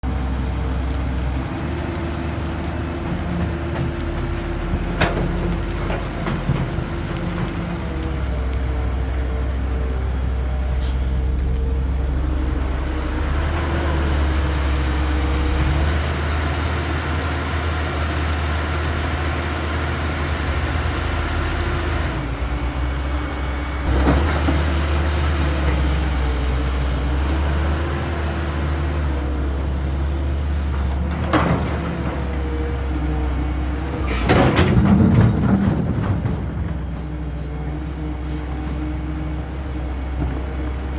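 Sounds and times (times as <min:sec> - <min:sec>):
excavator diesel engine running: 0:00.0 - 0:40.9
loud clatter: 0:34.0 - 0:37.1.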